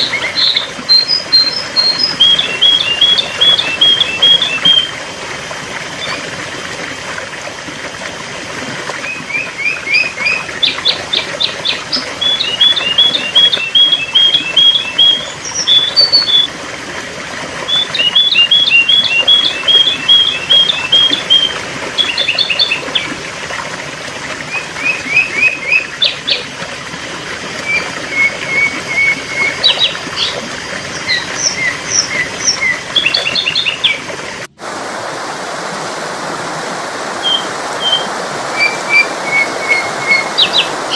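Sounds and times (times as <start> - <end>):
bird chirping: 0.0 - 4.9, 9.1 - 16.5, 17.7 - 22.8, 38.6 - 40.9.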